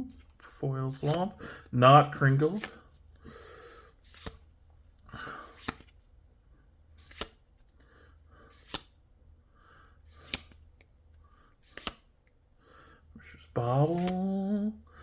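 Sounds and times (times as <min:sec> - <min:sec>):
cards rustling and tapping: 0:00.0 - 0:03.3, 0:03.9 - 0:06.2, 0:06.9 - 0:07.9, 0:08.5 - 0:09.0, 0:10.0 - 0:12.4, 0:13.4 - 0:14.6.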